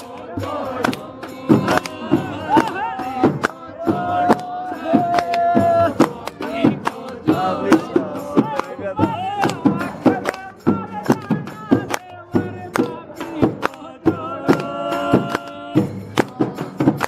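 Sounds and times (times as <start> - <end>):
men singing a folk song: 0.0 - 17.0
sharp percussive strikes: 0.0 - 17.0.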